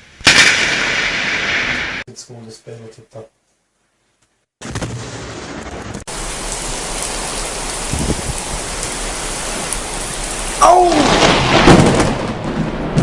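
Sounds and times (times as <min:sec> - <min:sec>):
heavy rain pouring: 0:06.0 - 0:13.0.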